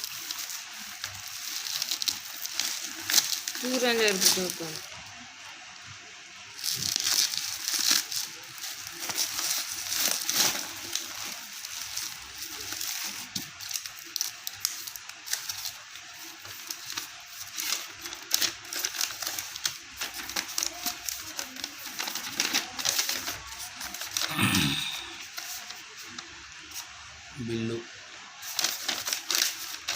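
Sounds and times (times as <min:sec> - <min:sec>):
plastic wrapping crinkling: 0:00.0 - 0:29.9.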